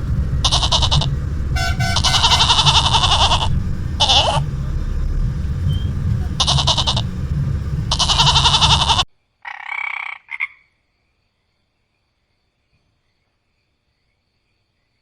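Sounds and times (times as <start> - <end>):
steady low hum: 0.0 - 9.0
frog croaking: 0.1 - 10.7.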